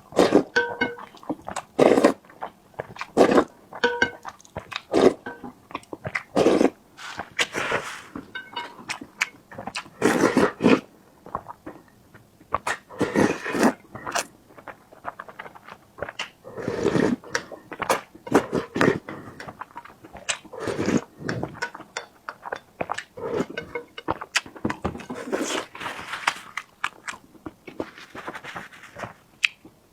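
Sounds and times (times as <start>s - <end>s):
person biting and chewing food: 6.1s - 10.8s, 22.4s - 29.7s.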